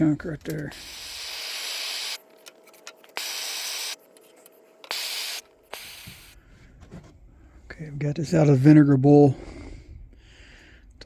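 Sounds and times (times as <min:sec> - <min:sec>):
spray hissing: 0:00.7 - 0:02.2, 0:03.2 - 0:04.0, 0:04.9 - 0:06.4.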